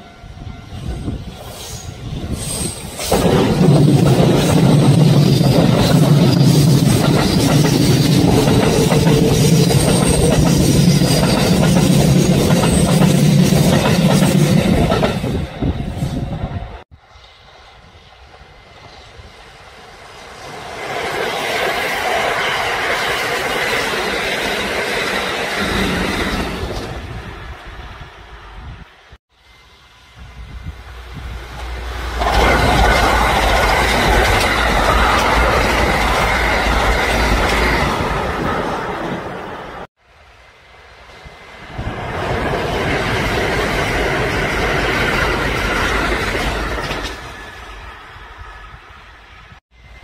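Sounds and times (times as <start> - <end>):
train wheels clattering: 2.4 - 15.4, 31.6 - 38.5.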